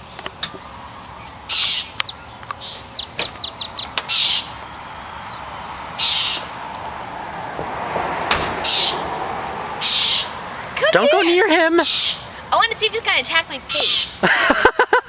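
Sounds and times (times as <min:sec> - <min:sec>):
blue jays harsh alarm calls: 0:01.3 - 0:06.6, 0:08.6 - 0:09.1, 0:09.8 - 0:11.2, 0:11.8 - 0:12.4, 0:13.5 - 0:14.2.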